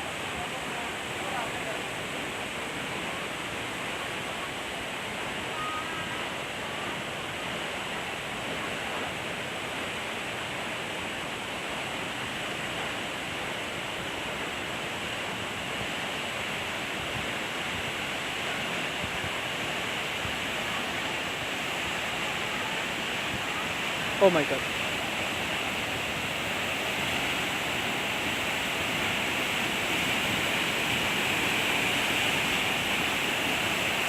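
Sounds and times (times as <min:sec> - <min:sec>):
waterfall rushing: 0:00.0 - 0:34.0
faint high note: 0:05.5 - 0:06.2.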